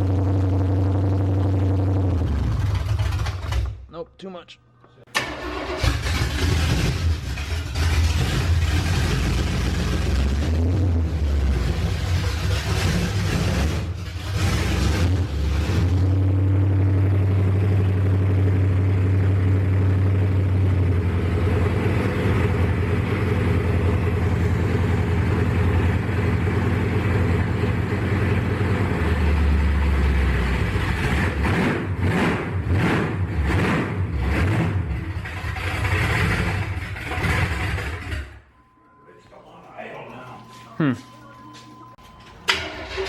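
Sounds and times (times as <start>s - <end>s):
engine throttle blips: 5.1s - 43.0s
truck engine idling: 16.0s - 31.1s.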